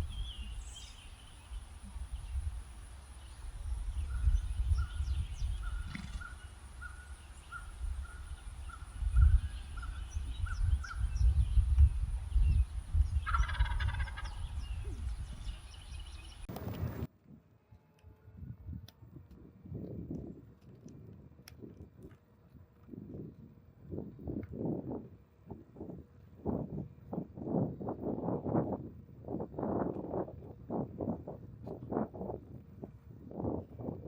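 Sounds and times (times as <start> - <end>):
wind rumble on microphone: 0.0 - 34.0
turkey gobble: 13.2 - 14.4
turkey calling: 13.2 - 14.5.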